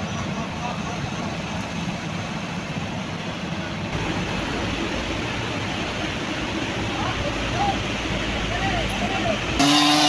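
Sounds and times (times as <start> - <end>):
engine rumbling: 0.0 - 10.0.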